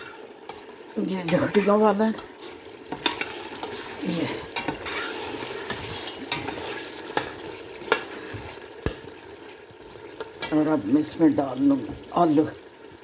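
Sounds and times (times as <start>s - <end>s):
chicken sizzling in a pot: 0.0s - 13.0s.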